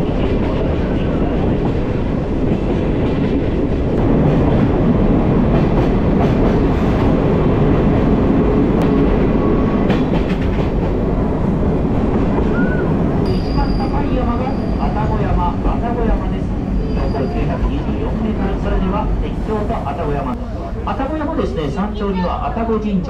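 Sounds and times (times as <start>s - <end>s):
train wheels rumbling on rails: 0.0s - 20.8s.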